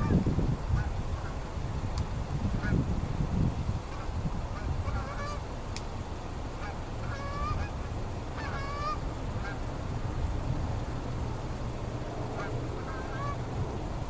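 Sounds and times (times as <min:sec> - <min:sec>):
steady low rumble: 0:00.0 - 0:14.0
geese honking: 0:03.9 - 0:05.4, 0:06.6 - 0:09.7, 0:12.3 - 0:13.5.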